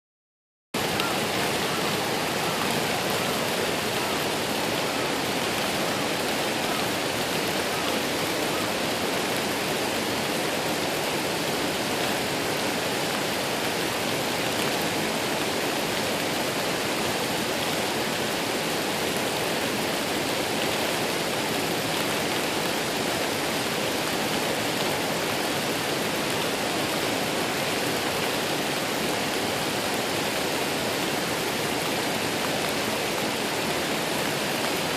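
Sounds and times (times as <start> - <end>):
waterfall rushing: 0.8 - 34.9.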